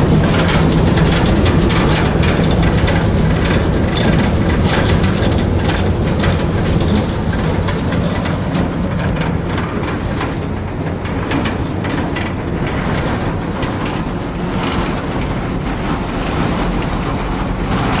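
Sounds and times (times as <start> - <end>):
diesel truck engine running: 0.0 - 18.0
small clicks and rattles: 0.0 - 18.0.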